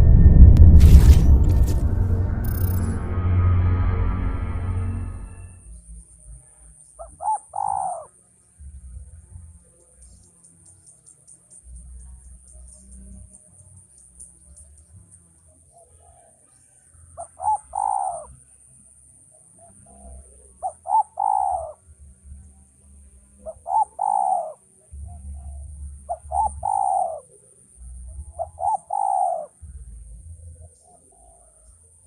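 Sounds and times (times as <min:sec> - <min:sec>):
dove cooing: 0:07.0 - 0:08.1, 0:17.2 - 0:18.3, 0:19.6 - 0:21.8, 0:23.4 - 0:27.4, 0:28.2 - 0:29.6.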